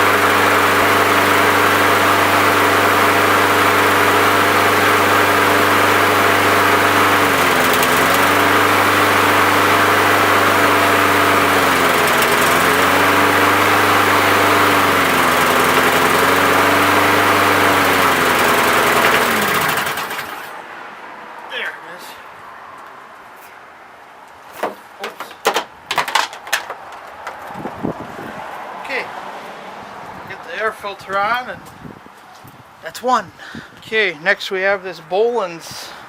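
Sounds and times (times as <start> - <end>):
small lawn mower engine running: 0.0 - 20.6.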